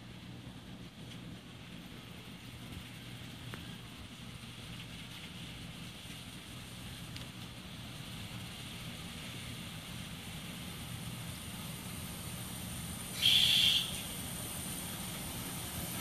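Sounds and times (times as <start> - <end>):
diesel railcar engine rumble: 0.0 - 16.0
short high train horn: 13.2 - 14.0.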